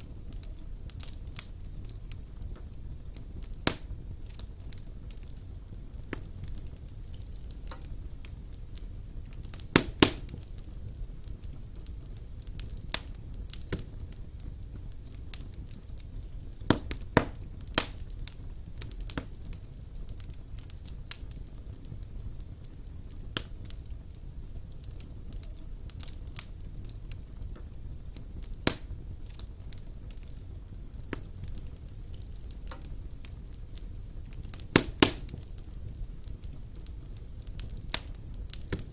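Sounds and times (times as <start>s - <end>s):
burning logs crackling and popping: 0.0s - 38.9s
wood fire burning: 0.0s - 38.9s.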